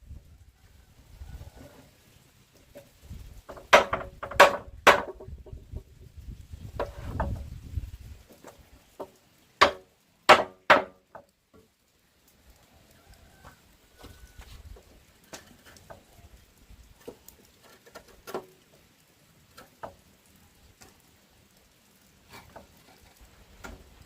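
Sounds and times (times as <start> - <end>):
tool striking wood: 3.5 - 5.3, 9.6 - 11.1.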